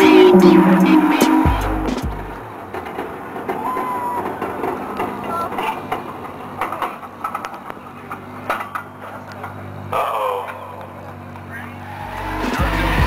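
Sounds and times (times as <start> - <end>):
mechanical clatter: 0.0 - 9.7
car engine running at low revs: 0.0 - 13.0.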